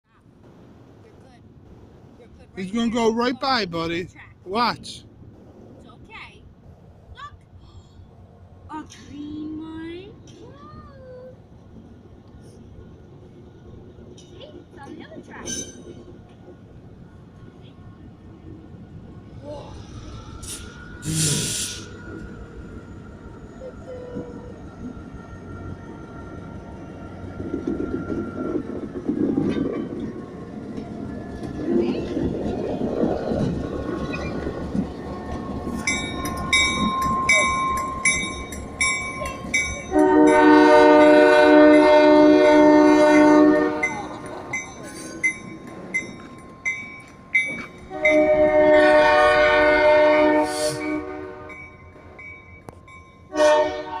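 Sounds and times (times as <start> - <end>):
train rumbling on rails: 0.0 - 54.0
train horn blasts: 39.8 - 44.3, 47.8 - 51.7, 53.3 - 54.0.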